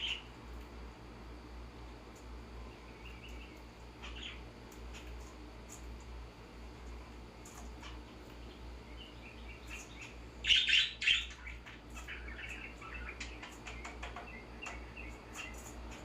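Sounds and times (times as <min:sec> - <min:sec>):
finches and parakeets chirping: 0:00.0 - 0:00.4, 0:02.6 - 0:05.9, 0:07.4 - 0:16.0
steady low hum: 0:00.0 - 0:16.0.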